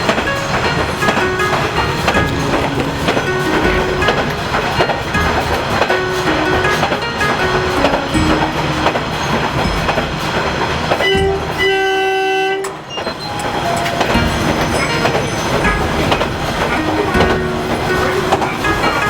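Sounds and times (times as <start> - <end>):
train rail clatter: 0.0 - 19.0
train horn: 10.5 - 19.0.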